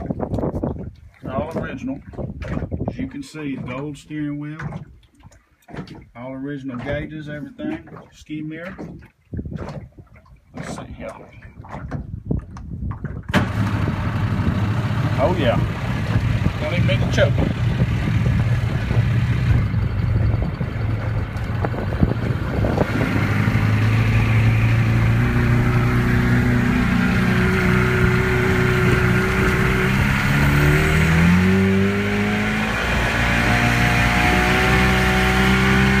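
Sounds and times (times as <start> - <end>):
outboard motor revving: 0.0 - 5.0, 11.5 - 36.0.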